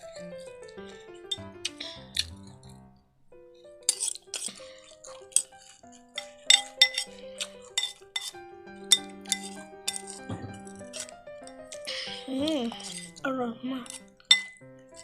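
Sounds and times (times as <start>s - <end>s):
background music with sustained notes: 0.0s - 15.0s
crunching while eating: 0.1s - 2.6s, 3.8s - 13.2s.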